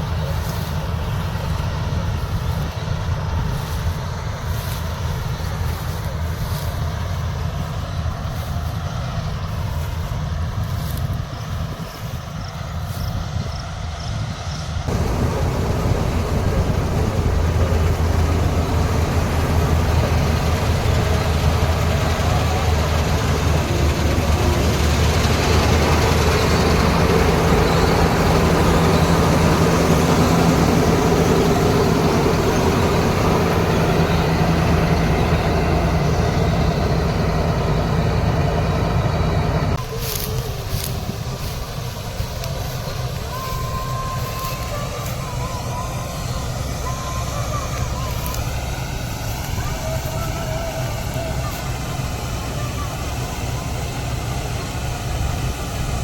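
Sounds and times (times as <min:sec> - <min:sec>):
combine harvester engine drone: 0:00.0 - 0:56.0
higher hum: 0:14.9 - 0:56.0.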